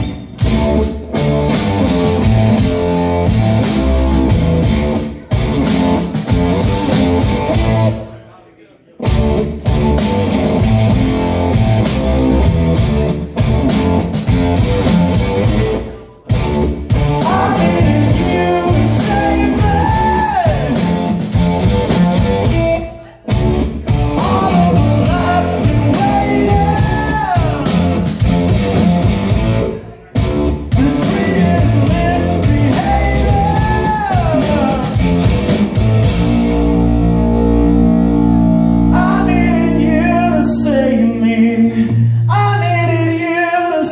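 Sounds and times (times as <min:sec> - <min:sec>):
drum kit: 0:00.0 - 0:08.0, 0:09.0 - 0:40.1
electric guitar: 0:00.0 - 0:08.1, 0:09.0 - 0:42.3
live rock band playing: 0:00.0 - 0:08.2, 0:09.0 - 0:43.4
person singing: 0:17.1 - 0:20.9, 0:22.9 - 0:28.1, 0:29.8 - 0:35.1, 0:38.8 - 0:43.9.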